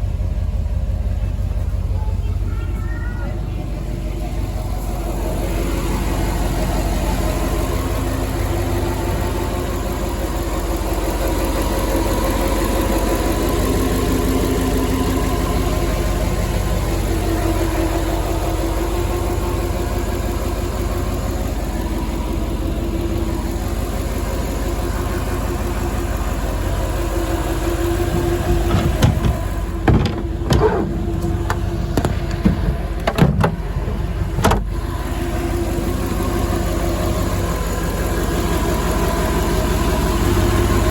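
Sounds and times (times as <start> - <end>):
boat engine idling: 0.0 - 40.9
sharp knocks: 28.4 - 33.6.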